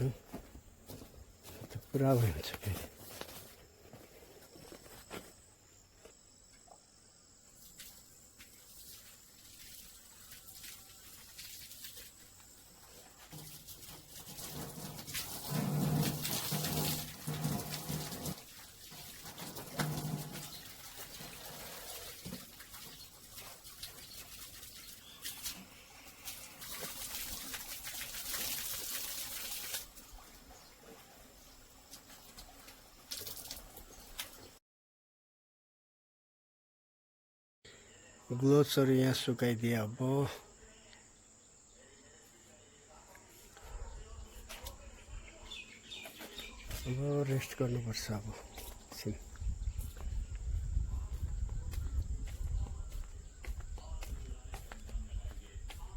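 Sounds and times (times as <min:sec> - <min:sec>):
water running and splashing: 0:07.5 - 0:34.6, 0:45.5 - 0:55.9.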